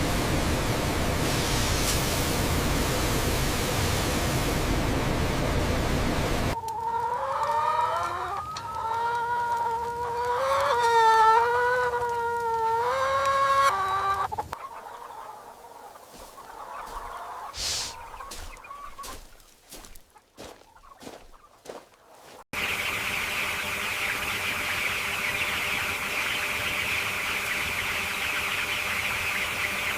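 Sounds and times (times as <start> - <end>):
roosters crowing: 14.6 - 22.4.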